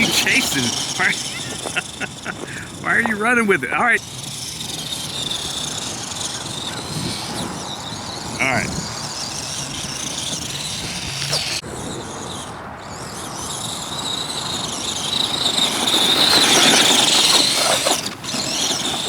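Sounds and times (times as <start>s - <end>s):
toy truck electric motor whining: 0.0s - 19.0s.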